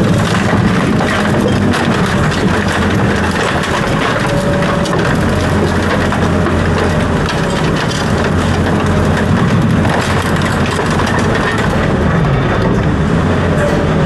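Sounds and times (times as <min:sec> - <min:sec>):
rattling and crackling: 0:00.0 - 0:13.0
heavy machine rumbling: 0:00.0 - 0:14.0.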